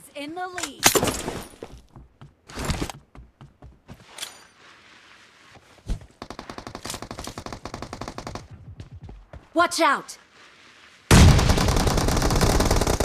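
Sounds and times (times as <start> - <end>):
video game automatic gunfire: 11.1 - 13.0.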